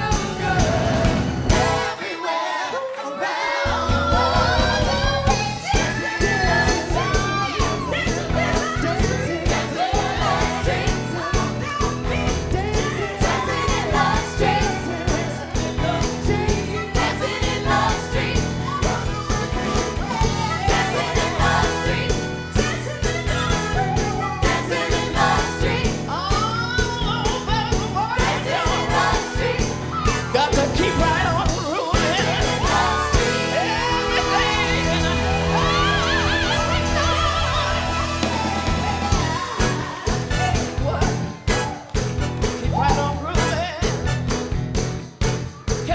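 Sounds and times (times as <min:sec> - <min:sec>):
live soul band playing: 0:00.0 - 0:02.2, 0:03.6 - 0:45.9
person singing: 0:30.1 - 0:41.8.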